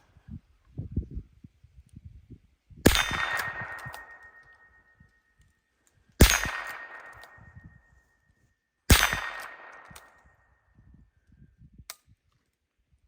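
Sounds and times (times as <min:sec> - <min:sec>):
rifle shots: 0:02.9 - 0:04.6, 0:06.2 - 0:07.5, 0:08.9 - 0:10.3
steel target ringing: 0:02.9 - 0:05.0, 0:06.2 - 0:07.9, 0:08.9 - 0:10.0.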